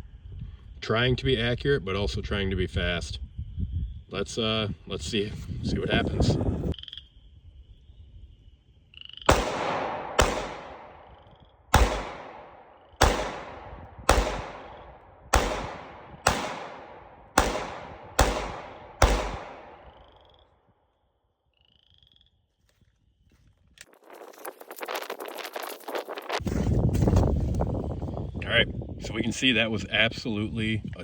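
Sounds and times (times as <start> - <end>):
pistol shots with echoing tail: 9.3 - 20.3.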